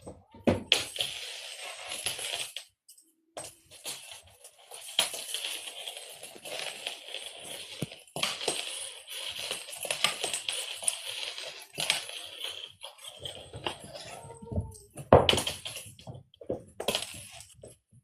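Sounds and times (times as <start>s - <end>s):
cat toy rattling and jingling: 3.4s - 17.8s.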